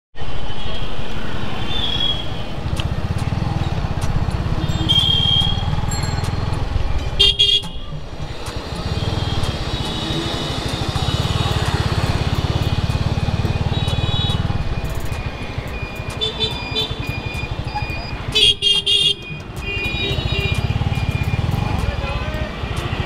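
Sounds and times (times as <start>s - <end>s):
motorcycle engine and road rumble: 0.7s - 23.0s
vehicle horns honking: 4.5s - 5.9s, 7.1s - 7.9s, 8.9s - 12.7s, 13.5s - 14.6s, 16.1s - 17.2s, 18.3s - 23.0s.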